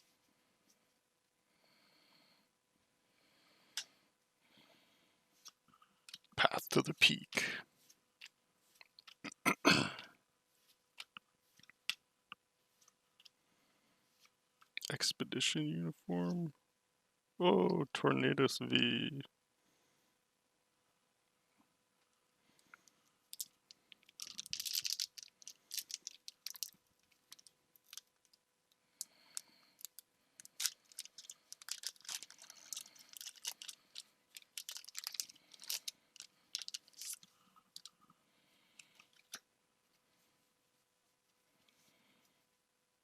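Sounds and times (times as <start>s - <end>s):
foil pack crinkling: 23.4s - 28.1s, 29.8s - 37.2s.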